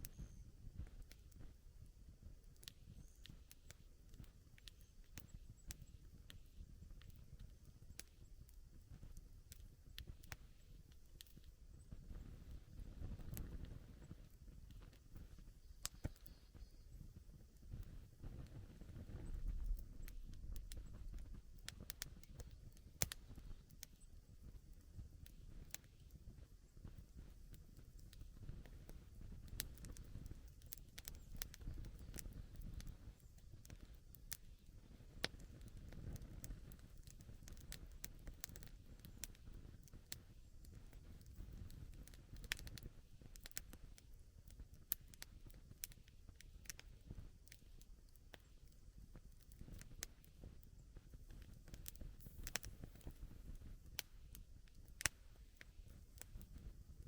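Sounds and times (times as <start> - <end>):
campfire crackling and popping: 0.0 - 57.0
faint low rumble: 0.0 - 57.0
soft low rumble: 11.6 - 22.4.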